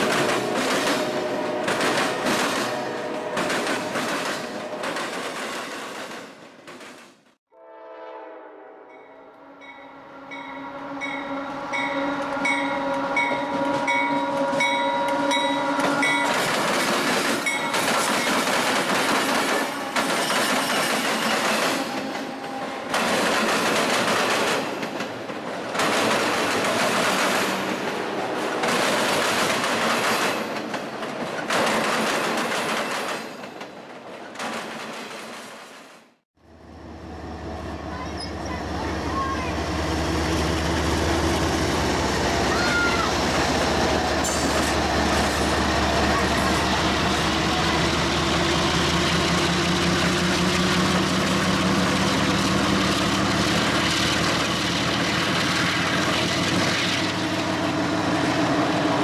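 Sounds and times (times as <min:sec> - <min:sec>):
train horn chord: 0:07.5 - 0:16.3
bell ringing: 0:08.9 - 0:16.5.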